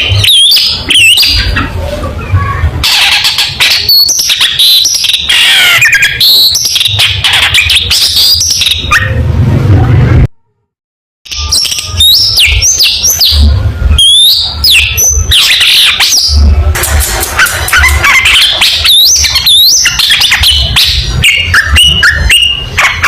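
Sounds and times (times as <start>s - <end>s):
shrike singing: 11.3s - 23.0s.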